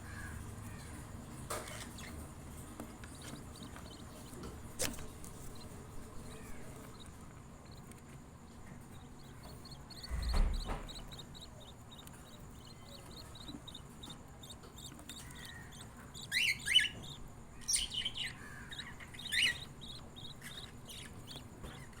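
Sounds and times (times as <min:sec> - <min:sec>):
chicks cheeping: 0:00.0 - 0:22.0
budgie chirps: 0:09.0 - 0:21.5
brief thump: 0:10.1 - 0:11.2.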